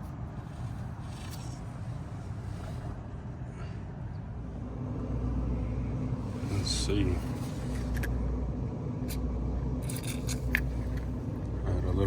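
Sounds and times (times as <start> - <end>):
low background rumble and hum: 0.0 - 12.0
faint handling clicks and rustles: 6.3 - 8.2.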